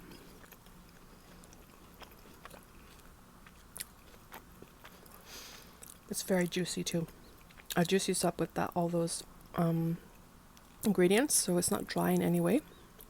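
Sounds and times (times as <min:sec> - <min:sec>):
person chewing sandwich: 0:00.0 - 0:06.1.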